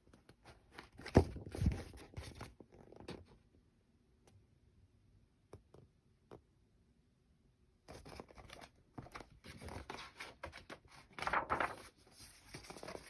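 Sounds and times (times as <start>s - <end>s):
handling rustling and scraping: 7.9s - 13.0s.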